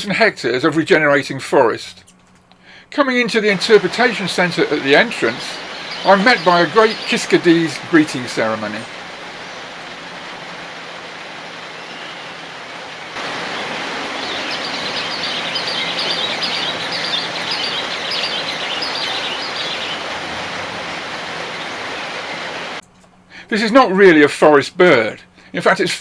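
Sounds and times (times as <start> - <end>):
birds calling shrill notes: 2.0 - 10.6, 14.2 - 20.1
steady hiss: 2.6 - 10.7.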